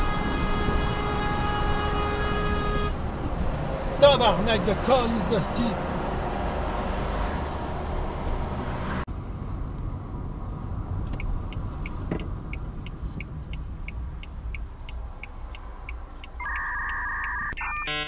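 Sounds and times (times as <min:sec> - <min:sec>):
car road and engine noise: 0:00.0 - 0:18.0
turn signal ticking: 0:11.0 - 0:18.0.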